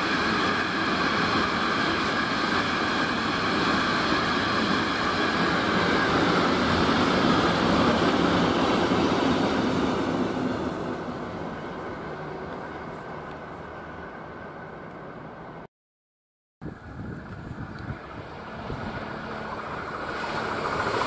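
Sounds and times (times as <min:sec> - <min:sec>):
train wagons rolling on rails: 0:17.2 - 0:21.0.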